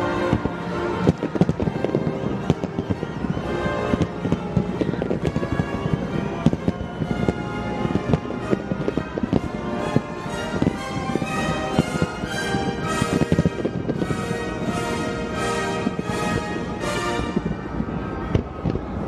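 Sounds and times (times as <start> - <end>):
music: 0.0 - 18.4
fireworks bursting and crackling: 0.0 - 19.0.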